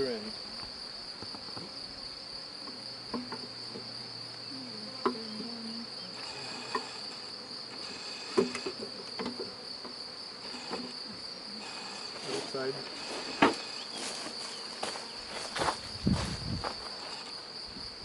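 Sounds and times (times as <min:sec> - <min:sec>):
honeybees buzzing: 0:00.0 - 0:18.0
insects trilling: 0:00.0 - 0:18.0
wooden hive frames knocking: 0:02.6 - 0:04.0, 0:04.9 - 0:05.6, 0:06.2 - 0:11.3, 0:13.2 - 0:13.9.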